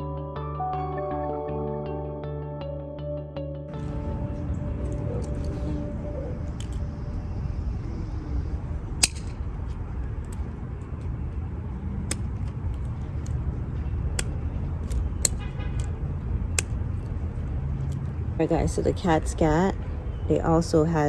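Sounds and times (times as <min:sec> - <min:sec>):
low outdoor rumble: 0:03.7 - 0:21.0
sharp clicks: 0:09.0 - 0:11.1, 0:11.9 - 0:13.5, 0:14.1 - 0:17.2.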